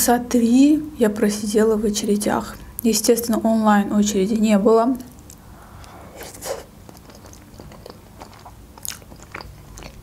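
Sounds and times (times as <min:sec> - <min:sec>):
wet chewing mouth clicks: 0:05.2 - 0:10.0.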